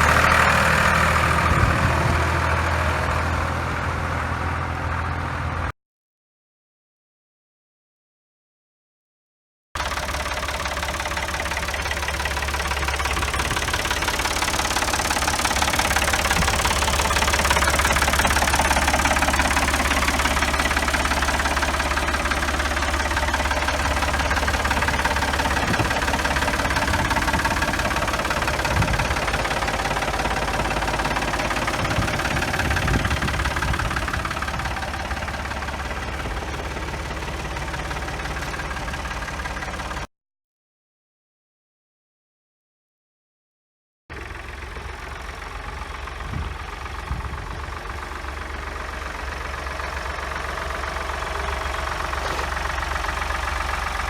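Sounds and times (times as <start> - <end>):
tractor engine running: 0.0 - 5.7, 9.8 - 40.1, 44.1 - 54.0.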